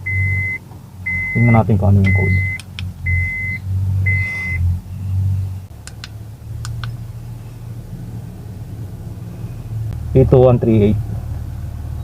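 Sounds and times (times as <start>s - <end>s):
car engine idling: 0.0s - 12.0s
sharp clicks: 2.0s - 2.9s, 5.7s - 7.0s.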